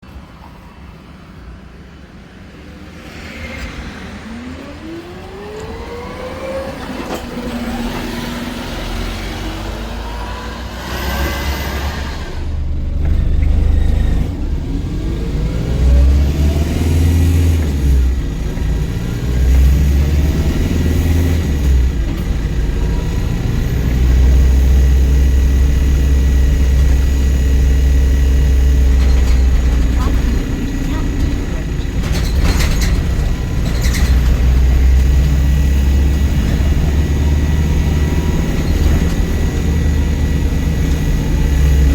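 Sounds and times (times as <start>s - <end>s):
diesel bus engine revving: 3.8s - 41.9s.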